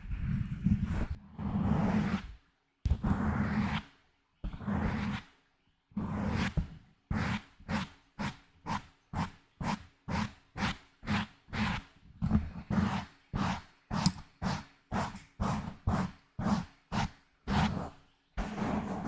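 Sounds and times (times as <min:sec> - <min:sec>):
scratching on a microphone: 0:00.0 - 0:02.3, 0:02.9 - 0:03.8, 0:06.0 - 0:19.0.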